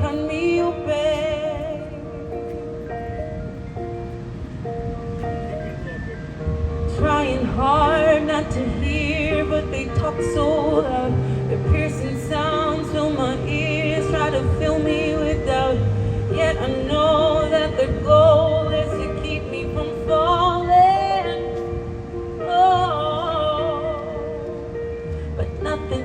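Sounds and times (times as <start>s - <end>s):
sustained keyboard chords: 0.0s - 26.0s
person singing with vibrato: 6.9s - 26.0s.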